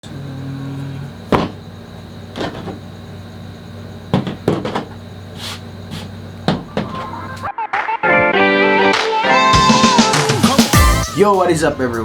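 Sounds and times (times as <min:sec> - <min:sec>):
steady low hum: 0:00.0 - 0:07.5
sharp knocks: 0:01.3 - 0:01.6, 0:02.4 - 0:02.8, 0:04.1 - 0:05.0, 0:05.9 - 0:07.2.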